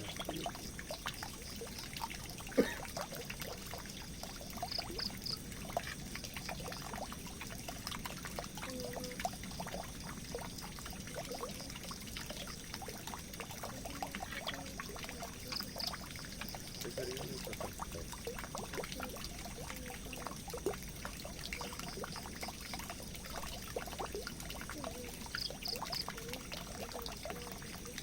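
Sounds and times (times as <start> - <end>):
small water drips: 0.0 - 28.0
water pouring into a drain: 0.0 - 28.0.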